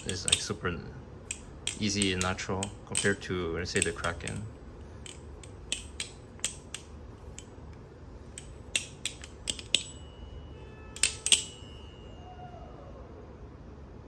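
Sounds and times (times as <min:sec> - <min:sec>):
metallic clicks of flipping knife: 0:01.3 - 0:07.5
high ringing tone: 0:09.7 - 0:13.1.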